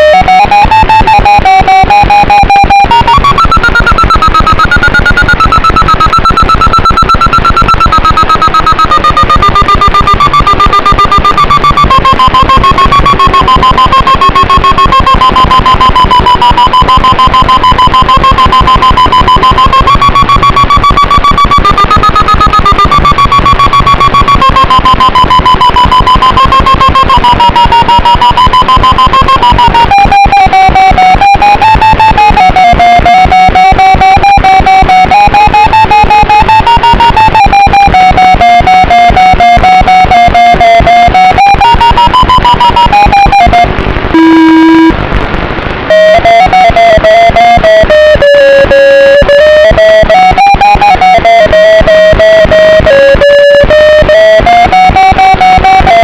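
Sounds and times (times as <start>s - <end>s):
distorted electric guitar music: 0.0s - 56.0s.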